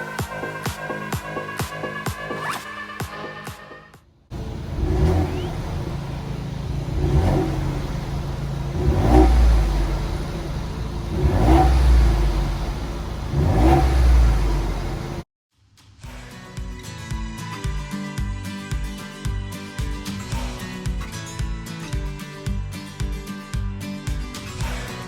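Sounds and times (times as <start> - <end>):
car engine idling and revving: 4.3 - 15.3.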